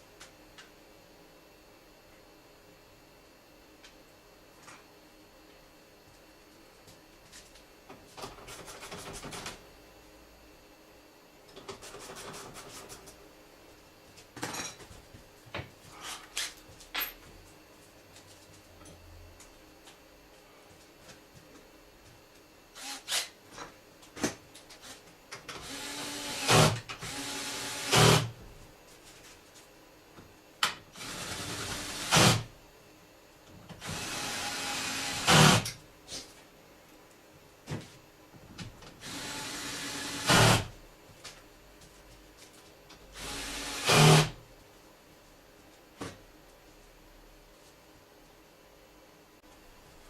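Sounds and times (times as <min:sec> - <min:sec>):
power tool driving fasteners: 0:25.5 - 0:28.3, 0:31.0 - 0:32.5, 0:33.8 - 0:35.8, 0:39.0 - 0:40.7, 0:43.2 - 0:44.4.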